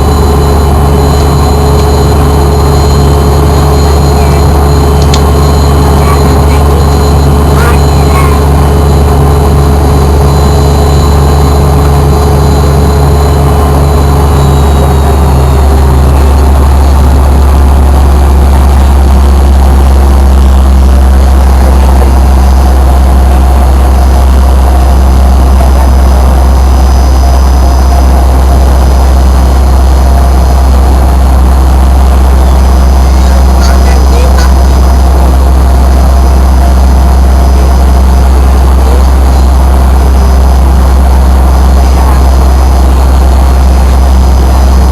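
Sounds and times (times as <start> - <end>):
jet engines droning: 0.0 - 44.9
steady whining tones: 0.0 - 44.9.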